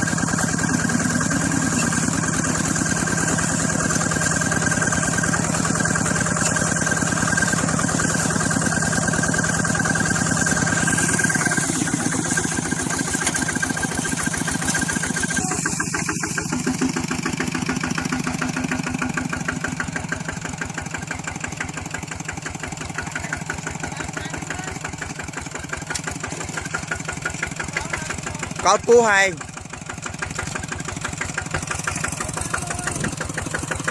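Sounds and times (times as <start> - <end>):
small engine running: 0.0 - 33.9.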